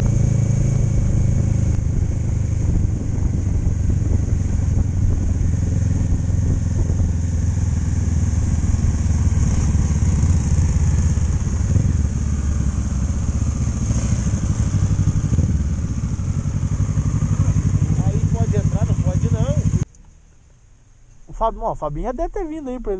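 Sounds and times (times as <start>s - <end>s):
motorcycle exhaust drone: 0.0s - 21.1s
constant hiss: 16.8s - 22.9s.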